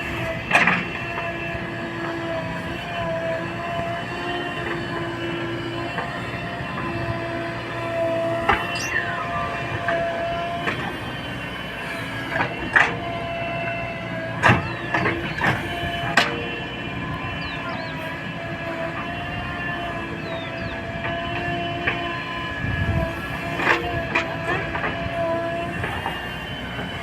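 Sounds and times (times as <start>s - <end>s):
backhoe engine running: 0.0s - 27.0s
multi-tone whine: 0.0s - 27.0s
brief squeals: 8.4s - 10.3s.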